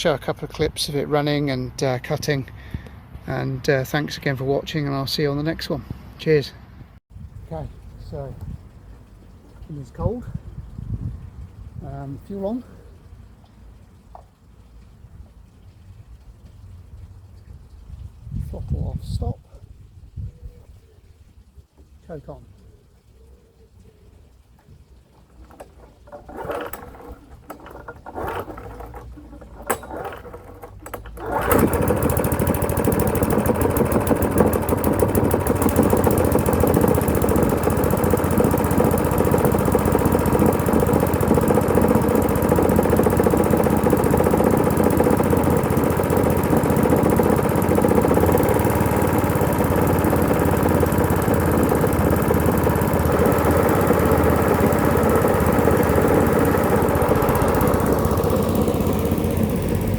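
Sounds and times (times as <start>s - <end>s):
mower engine clicks and knocks: 24.9s - 59.9s
lawn mower engine running: 25.0s - 59.9s.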